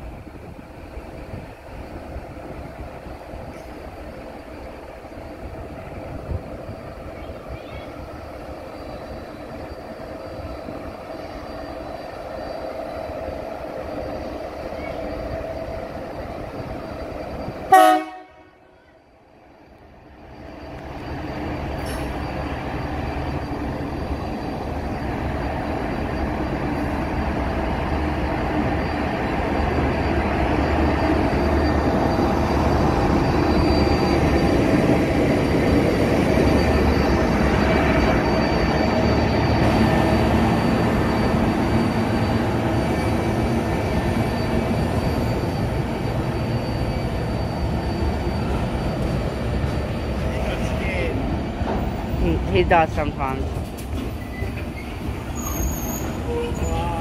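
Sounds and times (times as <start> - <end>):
diesel locomotive engine rumble: 0.0 - 57.0
train horn blast: 17.7 - 18.9.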